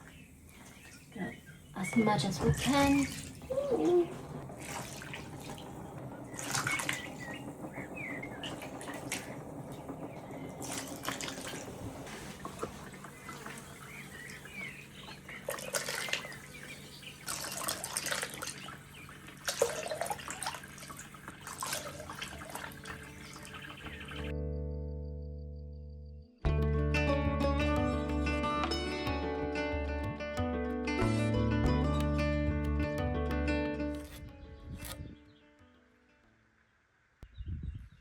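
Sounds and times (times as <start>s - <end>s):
liquid pouring and splashing: 2.5s - 7.2s, 10.6s - 14.4s, 15.4s - 16.5s, 17.2s - 23.7s.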